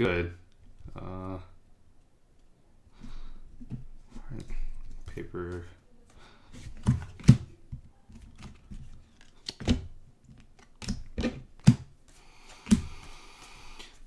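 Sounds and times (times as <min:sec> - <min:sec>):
cards tapping and clicking: 0:06.6 - 0:11.9.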